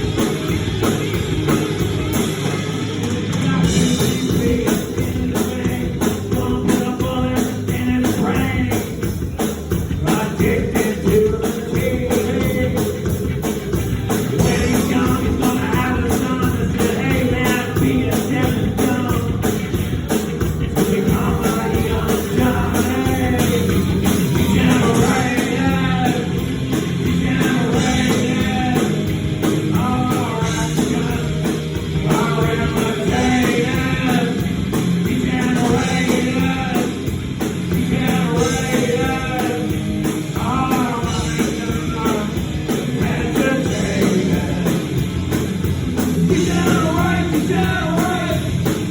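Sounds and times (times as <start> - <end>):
rock song with singer and band: 0.0 - 48.9.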